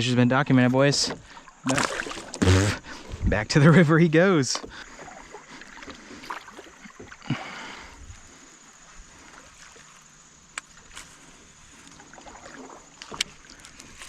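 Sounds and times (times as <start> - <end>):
water lapping: 0.5 - 14.0
small splash in river: 1.3 - 2.4, 4.9 - 8.0, 8.7 - 13.6
light clicks from boat: 9.6 - 14.0.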